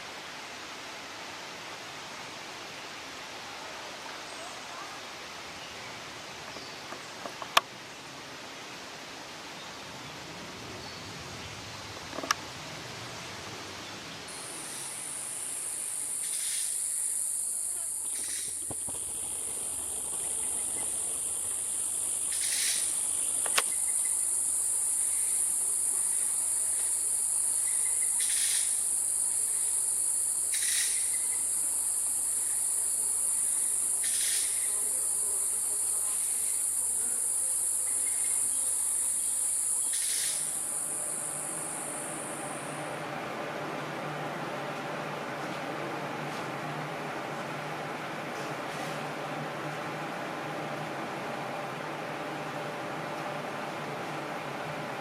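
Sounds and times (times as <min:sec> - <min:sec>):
insect trilling: 0:14.3 - 0:42.9.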